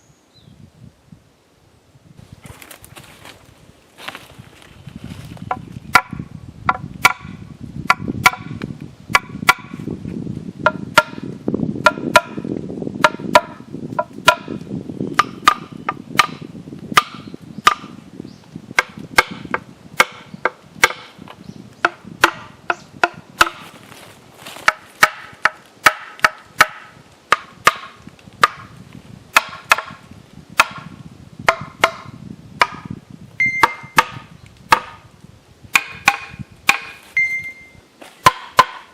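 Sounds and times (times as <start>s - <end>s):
hammer striking wooden logs: 5.5s - 9.8s, 10.6s - 18.0s, 18.7s - 23.8s, 24.4s - 28.7s, 29.3s - 30.0s, 30.6s - 35.0s, 35.7s - 37.2s, 38.2s - 38.9s.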